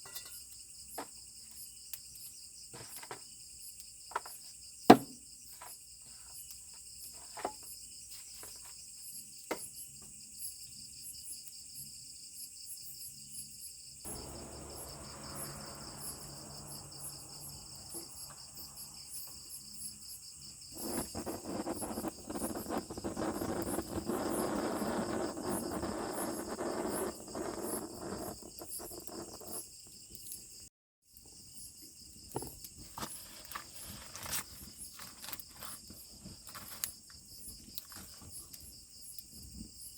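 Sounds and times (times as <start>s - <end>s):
insects chirring: 0.0s - 39.9s
crackly rushing noise: 14.1s - 20.0s, 20.7s - 29.2s.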